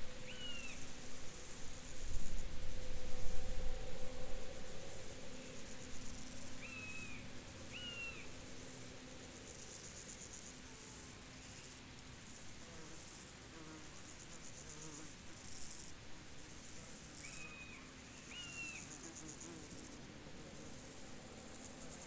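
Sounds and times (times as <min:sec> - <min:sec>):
insects trilling: 0:00.0 - 0:10.6, 0:16.6 - 0:20.0.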